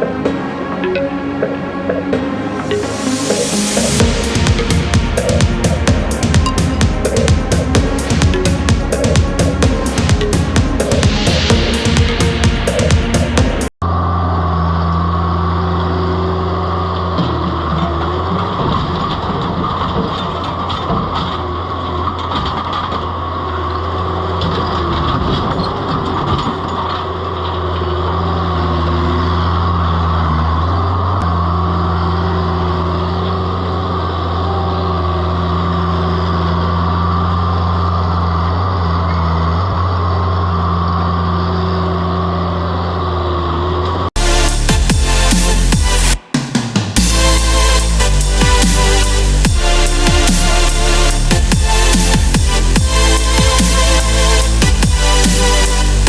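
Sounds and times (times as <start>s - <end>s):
high whine: 0.0s - 14.1s, 44.2s - 56.0s
loader engine running: 0.0s - 56.0s
machine knocking and scraping: 1.4s - 13.7s.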